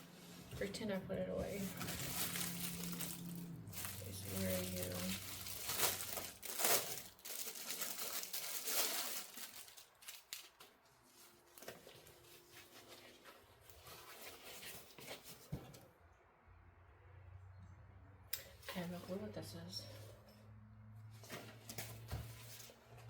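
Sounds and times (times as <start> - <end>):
packaging rustling and crinkling: 1.4 - 15.5.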